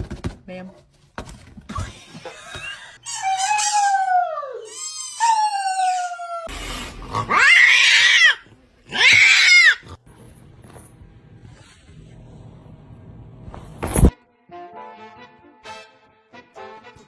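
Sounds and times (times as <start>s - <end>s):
pet crying: 2.0s - 6.5s, 7.2s - 9.9s.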